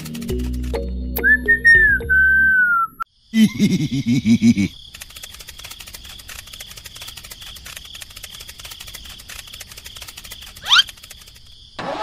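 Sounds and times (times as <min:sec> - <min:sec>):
crickets chirping: 0:03.0 - 0:11.8.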